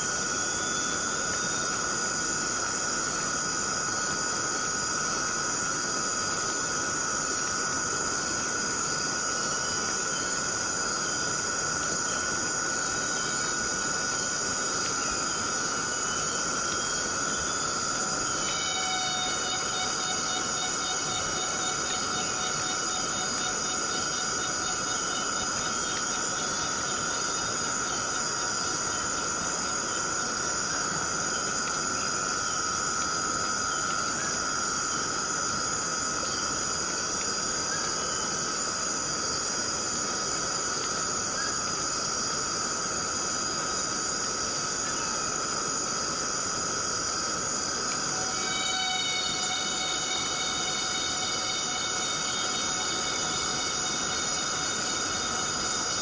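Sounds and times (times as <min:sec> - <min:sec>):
insect drone: 0:00.0 - 0:56.0
rain hissing: 0:00.0 - 0:56.0
low droning call: 0:15.2 - 0:29.0, 0:47.9 - 0:56.0.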